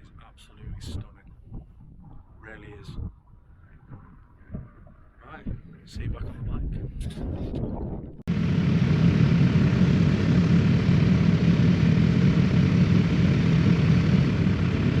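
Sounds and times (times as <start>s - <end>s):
motorcycle engine running: 8.3s - 15.0s.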